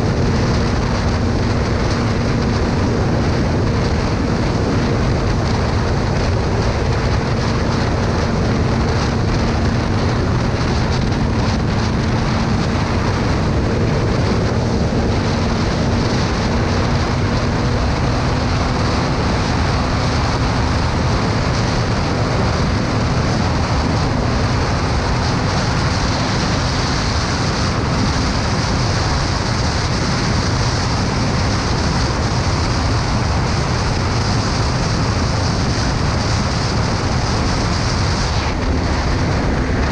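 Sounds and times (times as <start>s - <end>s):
motorcycle engine hum: 0.0s - 39.9s
wind rushing over microphone: 0.0s - 39.9s.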